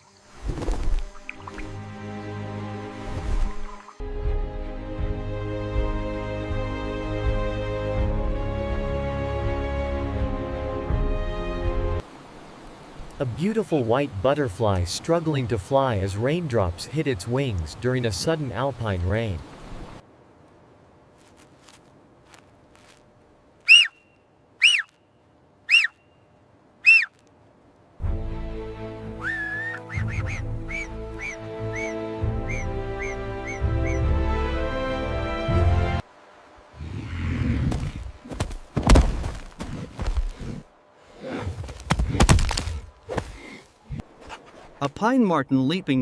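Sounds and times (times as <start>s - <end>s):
music: 1.5s - 12.0s, 28.0s - 36.0s
rustling: 21.1s - 23.2s
animal calling: 23.7s - 25.0s, 25.7s - 26.1s, 26.8s - 27.2s, 29.2s - 34.2s
dull thumps and knocks: 37.7s - 40.4s.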